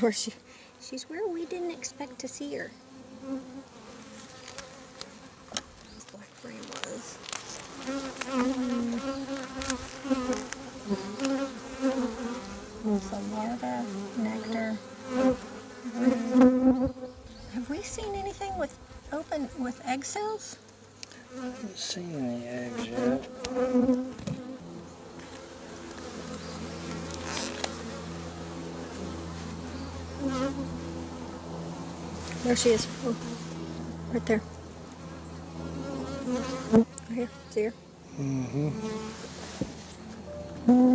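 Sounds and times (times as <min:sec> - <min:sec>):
honey bees buzzing: 0:00.0 - 0:40.9.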